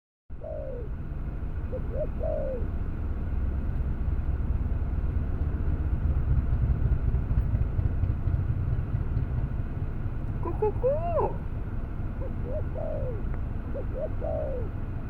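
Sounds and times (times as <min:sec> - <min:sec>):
dove cooing: 0:00.4 - 0:01.0, 0:01.6 - 0:02.8, 0:10.4 - 0:14.9.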